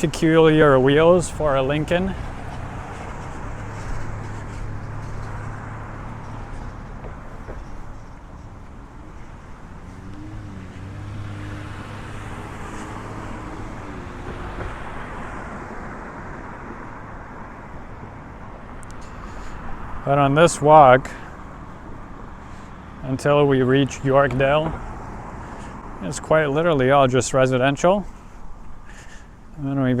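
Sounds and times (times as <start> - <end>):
vehicle engine wavering in pitch: 0.0 - 18.4
low engine hum: 0.0 - 29.6
cars passing: 0.0 - 30.0.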